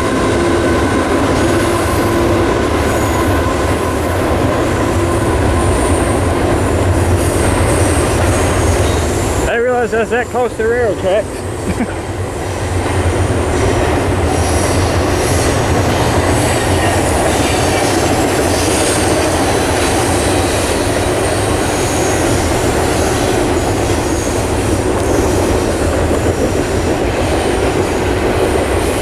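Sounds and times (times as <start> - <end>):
train wheels rumbling on rails: 0.0 - 29.0
steel wheels squealing: 4.9 - 11.4, 14.2 - 28.1.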